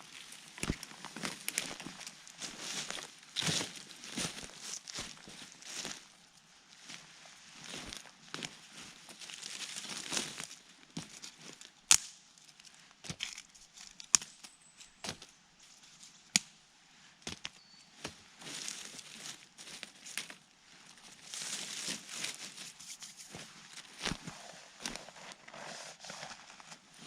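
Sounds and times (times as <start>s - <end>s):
rustling in dry leaves: 0.0s - 11.6s, 18.0s - 27.0s.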